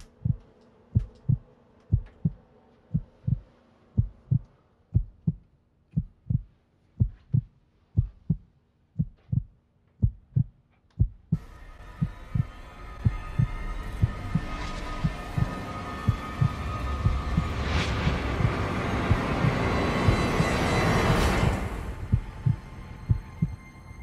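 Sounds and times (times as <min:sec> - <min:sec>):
heartbeat thumps: 0:00.0 - 0:00.4, 0:01.0 - 0:21.4, 0:22.0 - 0:23.7
sustained droning tone: 0:11.4 - 0:24.0.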